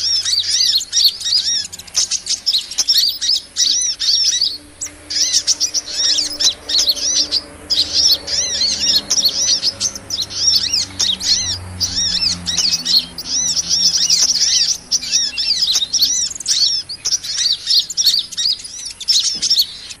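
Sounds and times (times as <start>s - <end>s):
sunbirds chirping: 0.0s - 20.0s.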